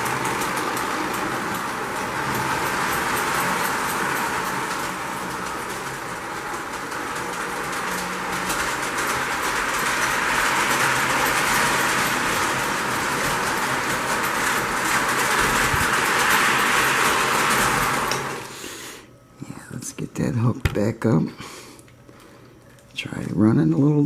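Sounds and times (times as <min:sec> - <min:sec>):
model train rolling rumble: 0:00.0 - 0:18.7
wheels clicking over rails: 0:00.0 - 0:18.7.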